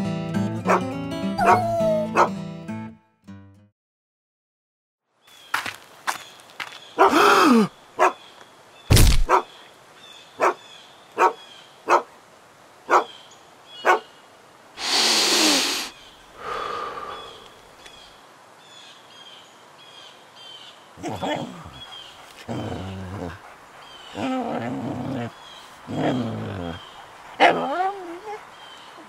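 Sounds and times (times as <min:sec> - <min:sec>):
dog barking: 0:00.7 - 0:02.3, 0:07.0 - 0:07.2, 0:08.0 - 0:08.2, 0:09.3 - 0:09.5, 0:10.4 - 0:10.6, 0:11.2 - 0:12.1, 0:12.9 - 0:13.1, 0:13.8 - 0:14.1
faint birdsong: 0:05.2 - 0:14.5, 0:15.8 - 0:29.0
thud: 0:08.9 - 0:09.3
dog growling: 0:21.0 - 0:28.6.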